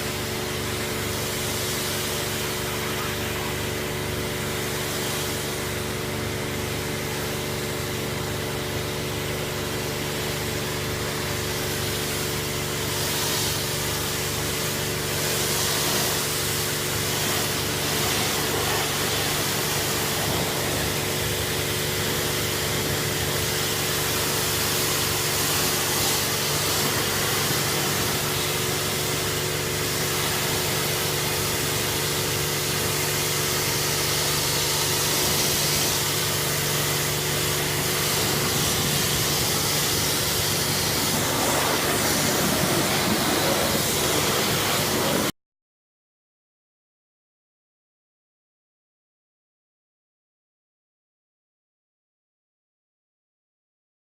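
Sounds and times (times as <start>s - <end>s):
pressure washer pump hum: 0.0s - 45.3s
hiss of high-pressure spray: 0.1s - 5.8s, 10.2s - 45.3s.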